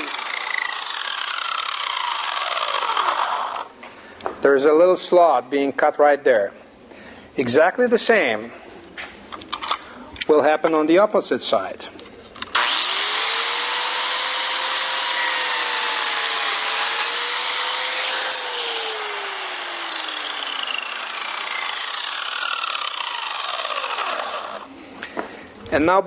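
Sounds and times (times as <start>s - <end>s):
biscuit joiner motor whine: 0.0s - 3.7s, 12.5s - 24.7s.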